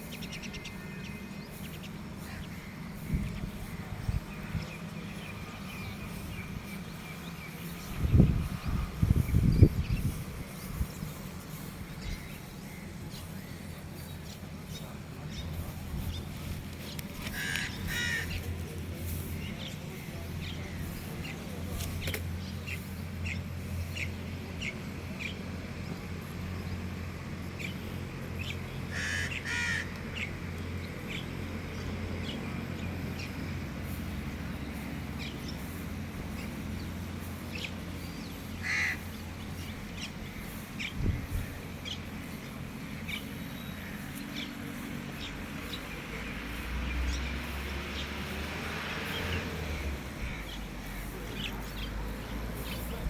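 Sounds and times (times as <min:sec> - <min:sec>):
small birds chirping: 0:00.0 - 0:53.0
crows cawing: 0:17.3 - 0:18.4, 0:28.9 - 0:30.0, 0:38.6 - 0:39.1.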